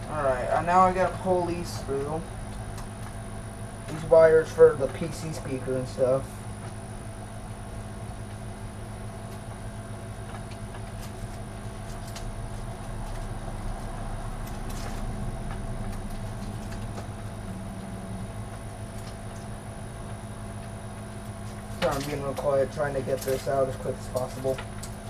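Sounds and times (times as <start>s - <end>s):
low machine hum with whine: 0.0s - 25.0s
wires clicking and rustling: 10.3s - 17.9s, 20.6s - 25.0s.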